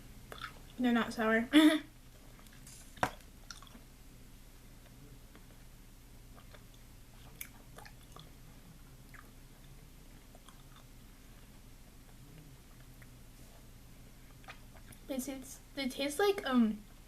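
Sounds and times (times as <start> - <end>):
low steady hum: 0.0 - 17.0
person chewing: 0.3 - 0.8, 2.1 - 3.9, 6.3 - 8.4, 9.0 - 13.2, 14.2 - 15.1.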